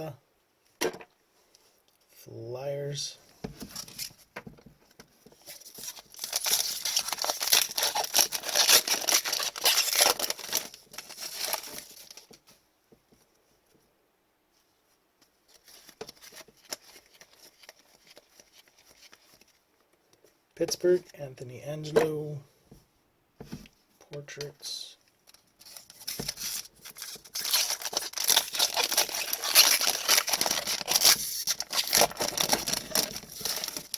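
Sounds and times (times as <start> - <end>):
plastic wrapper tearing and crinkling: 5.4 - 12.3, 15.5 - 19.6, 25.2 - 33.9.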